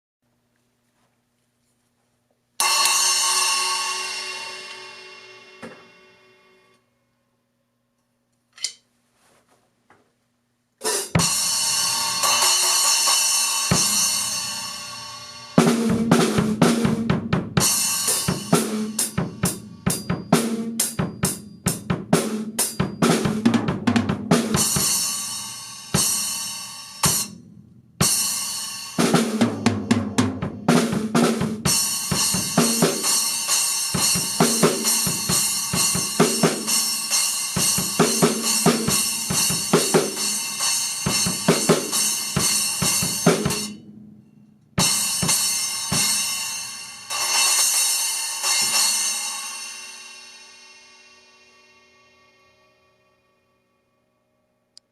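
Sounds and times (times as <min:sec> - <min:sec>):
drum kit groove: 0:02.6 - 0:06.2, 0:10.8 - 0:44.1, 0:44.7 - 0:50.4
splash cymbal ringing: 0:02.6 - 0:06.7.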